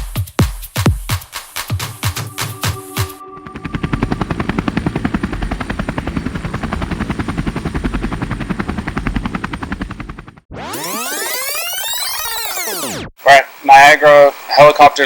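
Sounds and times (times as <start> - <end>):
helicopter rotor thumping: 1.8 - 11.7
rising and falling electronic tone: 1.8 - 13.1.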